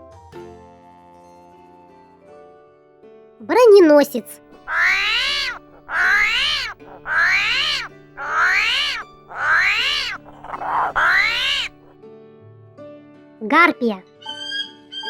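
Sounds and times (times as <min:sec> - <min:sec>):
high rising and falling animal calls: 0:04.6 - 0:11.9.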